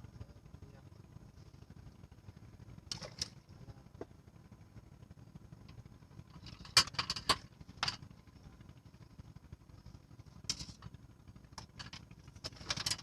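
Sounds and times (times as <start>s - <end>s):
crackling clicks and rattles: 5.6s - 8.1s, 10.2s - 13.0s.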